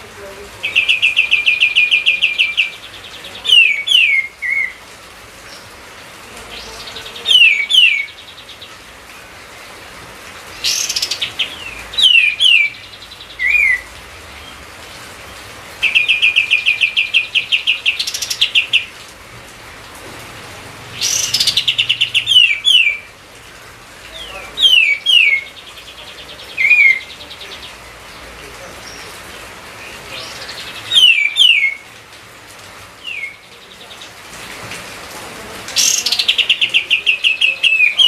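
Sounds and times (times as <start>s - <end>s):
rapid bird trills: 21.0s - 23.1s.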